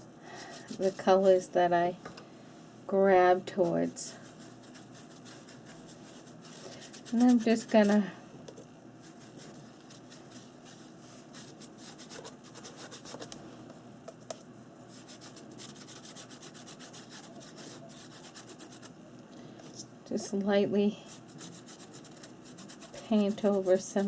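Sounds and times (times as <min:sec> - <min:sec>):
paintbrush brushing on paper: 0:03.6 - 0:08.0, 0:09.0 - 0:13.3, 0:14.9 - 0:18.9, 0:21.0 - 0:24.0.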